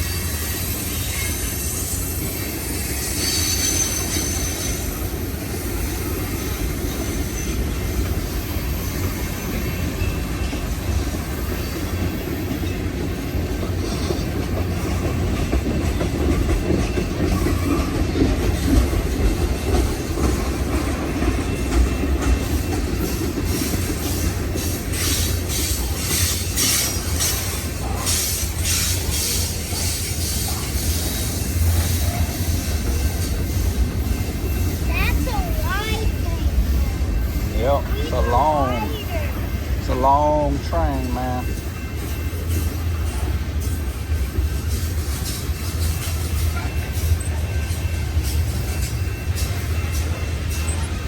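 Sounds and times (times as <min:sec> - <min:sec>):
high wheel squeal: 0:00.0 - 0:10.9
train wheels rumbling on rail: 0:00.0 - 0:51.0.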